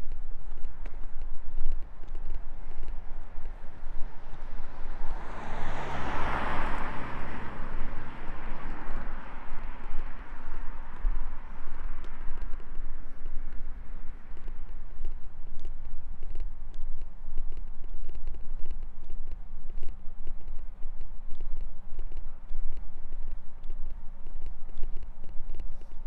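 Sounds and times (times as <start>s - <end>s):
vehicle passing by: 4.2s - 11.5s.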